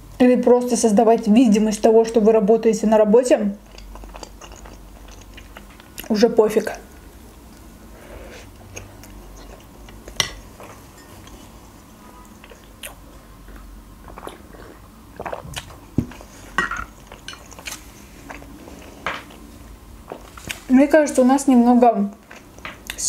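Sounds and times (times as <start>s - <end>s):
person chewing soft food: 3.6s - 6.1s, 6.9s - 20.6s.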